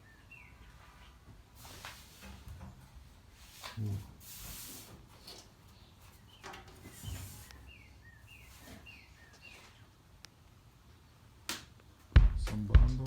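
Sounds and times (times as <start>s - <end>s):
bird chirping: 0.0s - 1.3s, 5.6s - 11.2s
low background noise: 0.0s - 13.0s.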